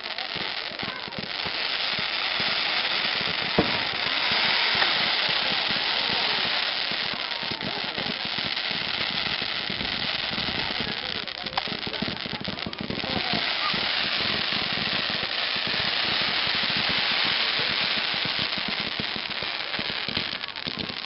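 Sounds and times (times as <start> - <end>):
faint crowd voices: 0.0 - 21.0
fireworks crackling: 0.0 - 21.0
firework bang: 0.8 - 8.2.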